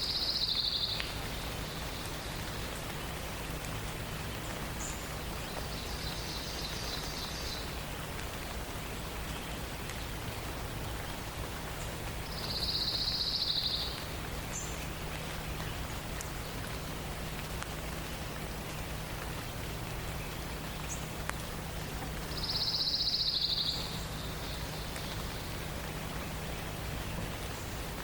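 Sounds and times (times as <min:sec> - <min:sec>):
songbird trilling: 0:00.0 - 0:01.1, 0:12.3 - 0:14.0, 0:22.3 - 0:25.4
forest ambience hiss: 0:00.0 - 0:28.0.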